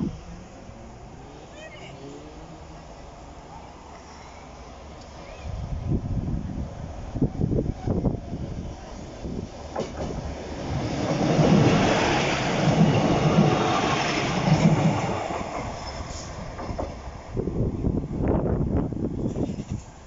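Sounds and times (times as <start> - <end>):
diesel railcar engines: 0.0 - 20.0
train wheels on rails: 6.0 - 20.0.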